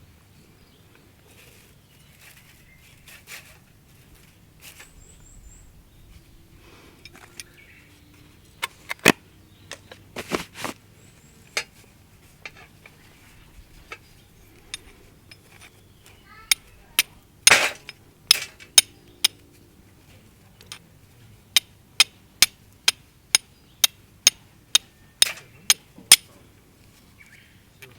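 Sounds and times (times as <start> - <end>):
bird chirping: 4.6 - 6.5
clicks of objects being handled: 7.0 - 7.6, 8.6 - 10.8, 13.8 - 19.4, 24.2 - 26.3.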